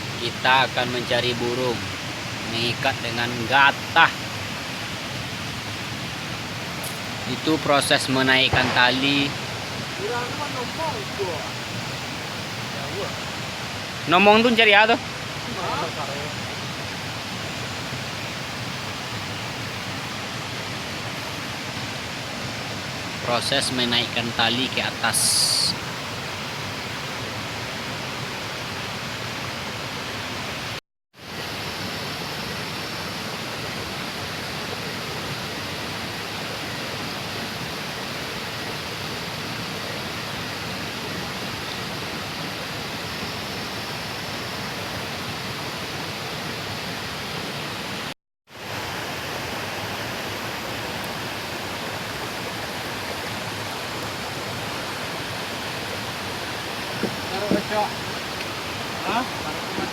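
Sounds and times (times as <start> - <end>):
steady rushing noise: 5.3 - 13.4.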